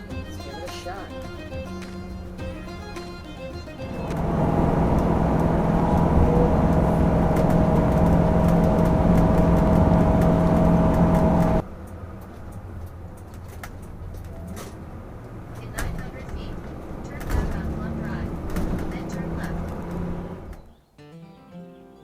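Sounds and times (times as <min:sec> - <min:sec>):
road noise: 0:00.0 - 0:20.8
vehicle engine drone: 0:01.2 - 0:20.7.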